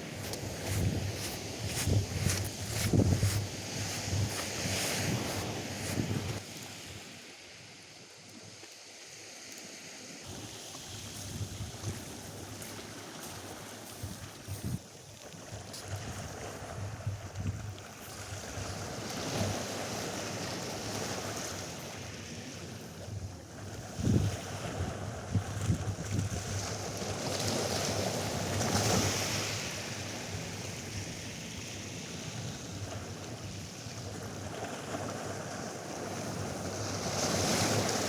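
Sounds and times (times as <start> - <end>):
wind gusting on microphone: 0.0 - 6.4
surf washing onto beach: 0.0 - 7.6, 18.0 - 38.0.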